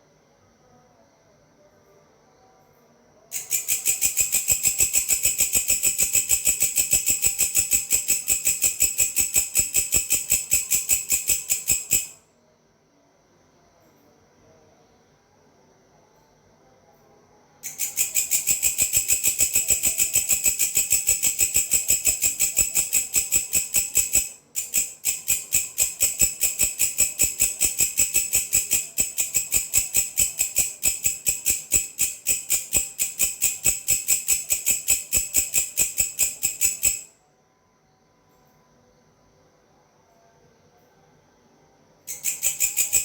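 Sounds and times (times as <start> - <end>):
grasshopper calling: 3.4 - 12.2, 17.6 - 37.1, 42.1 - 43.0.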